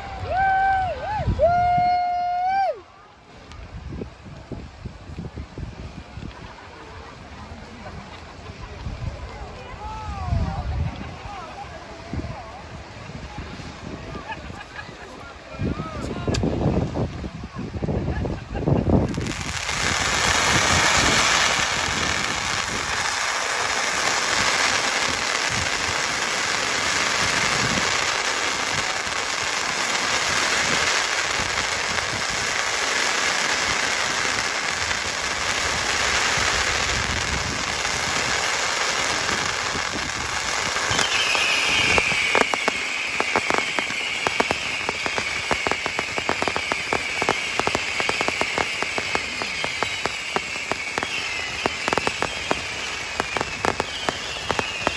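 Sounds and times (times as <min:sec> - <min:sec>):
fireworks crackling: 0:00.0 - 0:54.9
fireworks whistles: 0:19.0 - 0:54.9.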